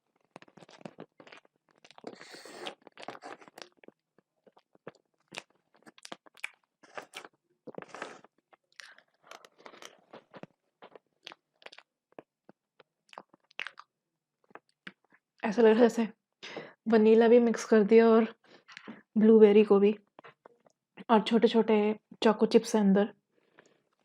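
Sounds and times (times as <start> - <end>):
close-miked chewing of cake: 0.2 - 13.9.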